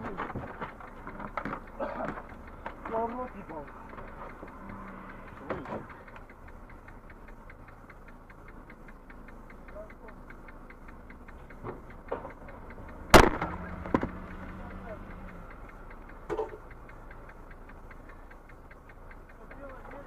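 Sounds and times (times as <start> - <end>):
car engine idling: 0.0 - 20.0
rapid ticking: 0.0 - 20.0
loud sharp thump: 13.1 - 14.1.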